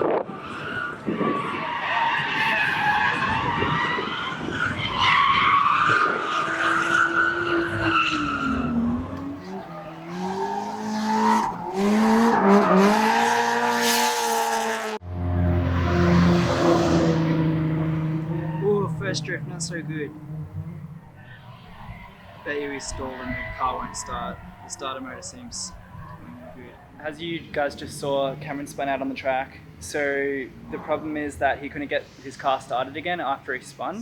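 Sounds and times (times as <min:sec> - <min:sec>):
car engine revving: 0:02.2 - 0:22.4.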